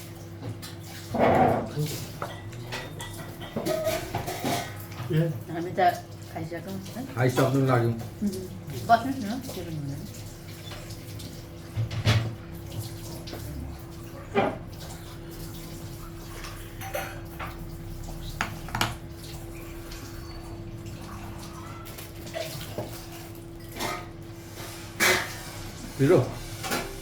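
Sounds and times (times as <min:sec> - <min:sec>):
plates and utensils clinking: 0:01.1 - 0:05.1, 0:16.5 - 0:17.6.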